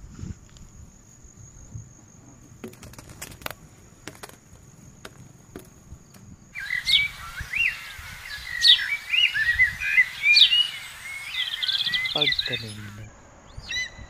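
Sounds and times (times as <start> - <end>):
low wind rumble: 0.0 - 14.0
insect trilling: 2.6 - 13.1.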